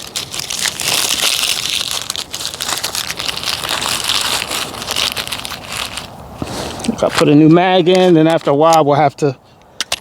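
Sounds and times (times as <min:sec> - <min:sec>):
gear crackling and rustling: 0:00.0 - 0:08.6.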